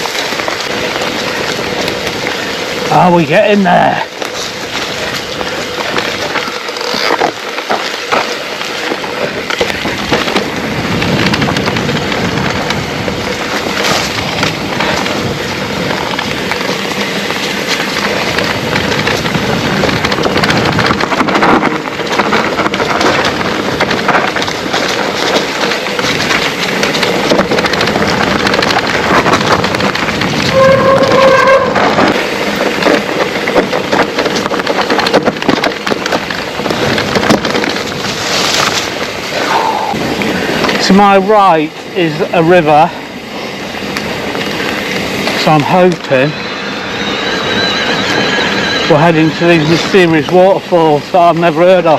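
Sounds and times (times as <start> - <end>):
bike rattling over rough trail: 0.0 - 51.9
brief squeal: 46.4 - 48.9.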